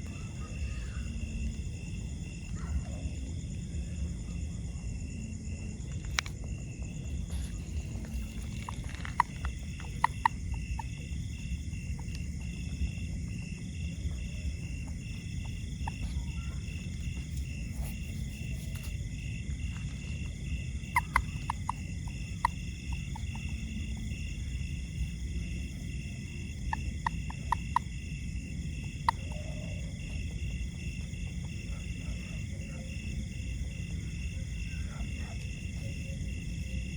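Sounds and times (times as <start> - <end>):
frogs and insects trilling: 0.0 - 36.9
sharp clicking frog calls: 5.9 - 36.9.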